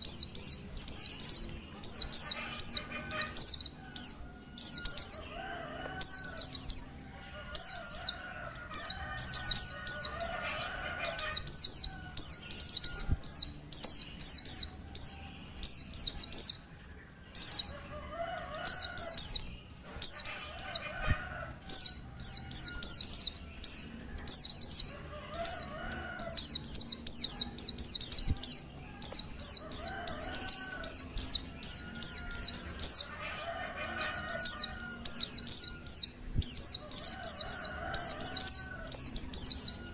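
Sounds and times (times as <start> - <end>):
fainter lower bird calls: 0.0 - 39.9.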